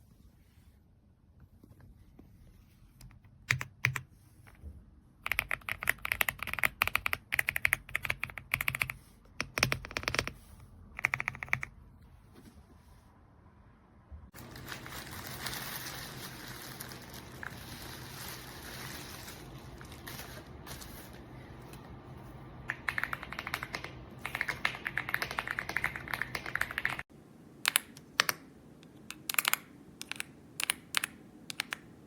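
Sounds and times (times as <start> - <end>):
mechanical keyboard typing: 3.4 - 4.1, 5.2 - 10.4, 11.0 - 11.8, 22.7 - 27.1, 29.1 - 31.9.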